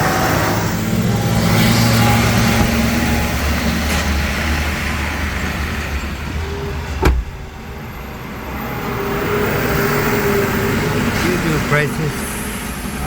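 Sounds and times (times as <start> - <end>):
truck engines rumbling: 0.0 - 13.0
sharp knock: 7.0 - 7.5.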